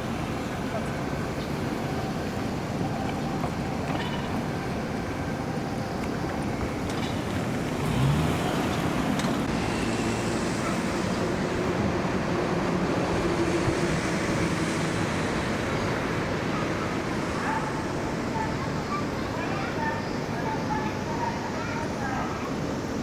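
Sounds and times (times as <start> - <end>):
vehicles passing: 0.0 - 23.0.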